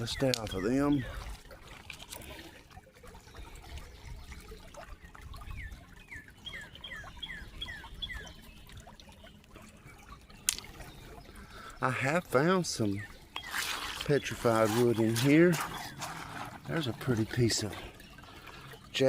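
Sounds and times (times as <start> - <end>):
water trickling over rocks: 0.0 - 19.0
bird chirping: 5.5 - 18.9.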